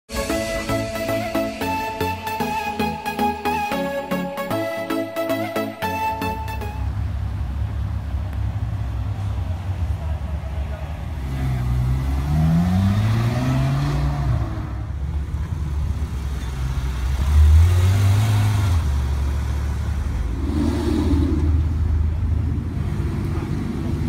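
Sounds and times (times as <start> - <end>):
car engine accelerating: 6.3 - 24.0
car engine revving: 9.4 - 15.0, 16.8 - 24.0.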